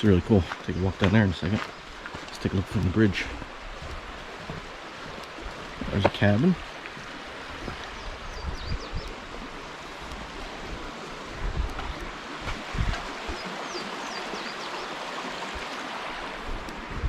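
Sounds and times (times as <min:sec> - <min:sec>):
creek water rushing: 0:00.0 - 0:17.0
bird chirping: 0:13.3 - 0:14.9.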